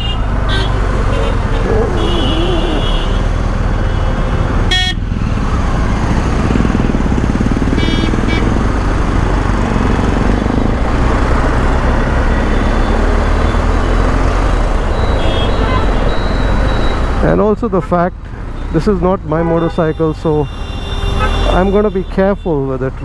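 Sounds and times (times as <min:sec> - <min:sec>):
vehicle horn toots: 0:00.0 - 0:05.0, 0:07.7 - 0:08.6, 0:15.2 - 0:16.5, 0:19.5 - 0:22.5
motorcycle engine drone: 0:00.0 - 0:17.2
road and wind rush: 0:00.0 - 0:23.0.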